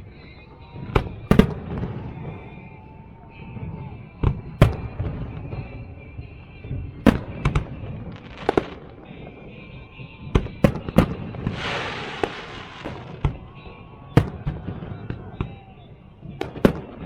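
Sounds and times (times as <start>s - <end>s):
fireworks banging: 3.6s - 17.0s
fireworks crackling hiss: 11.2s - 13.3s.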